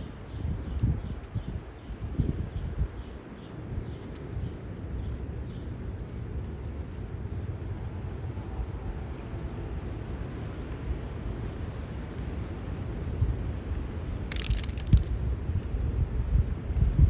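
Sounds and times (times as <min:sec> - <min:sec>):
wind buffeting microphone: 0:00.0 - 0:17.0
small bird chirping: 0:11.6 - 0:15.5.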